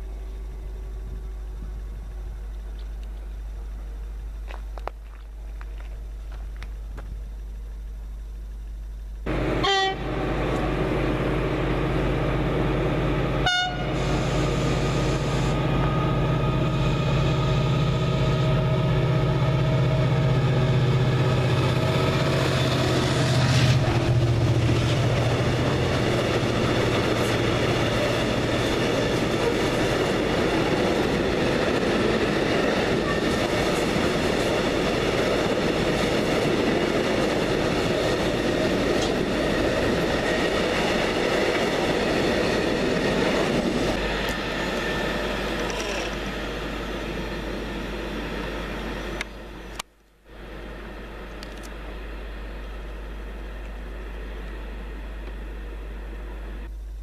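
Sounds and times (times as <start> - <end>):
locomotive engine drone: 0.0 - 57.0
train horn blasts: 9.3 - 10.7, 13.4 - 14.3.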